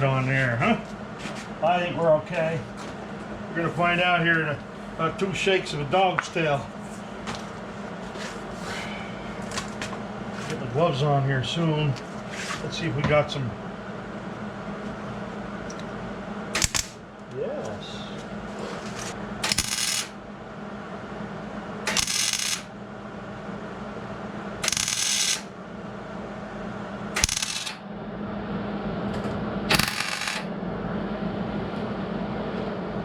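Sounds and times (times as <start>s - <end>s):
steady low hum: 0.0s - 33.0s
welding crackling hiss: 16.6s - 17.0s, 19.4s - 20.1s, 21.9s - 22.7s, 24.6s - 25.5s, 27.2s - 27.8s.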